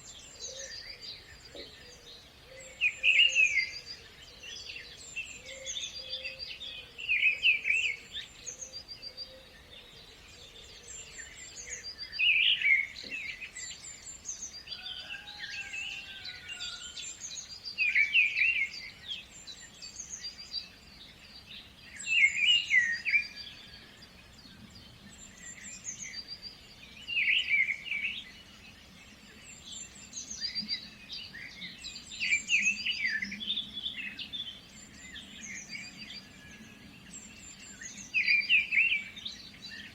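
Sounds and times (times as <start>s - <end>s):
bird chirping song: 0.0s - 39.9s.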